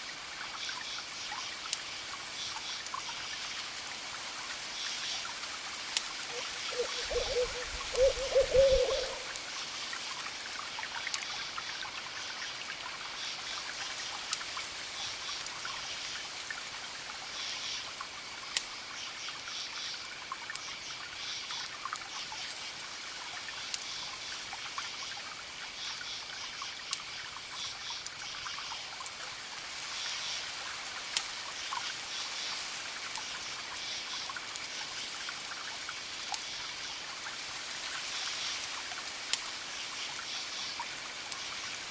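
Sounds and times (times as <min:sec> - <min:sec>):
crickets chirping: 0:06.3 - 0:09.4.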